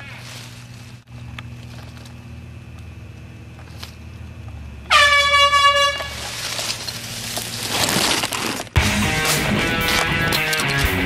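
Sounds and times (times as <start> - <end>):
low steady hum: 0.0 - 8.8
air horn blare: 4.9 - 6.3.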